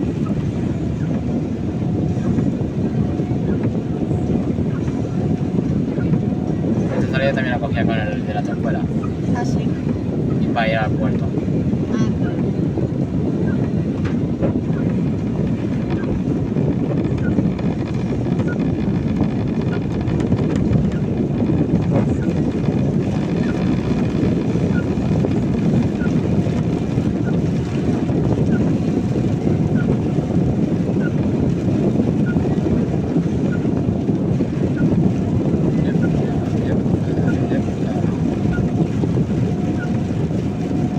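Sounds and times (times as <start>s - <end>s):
tyres and engine rumble: 0.0s - 40.9s.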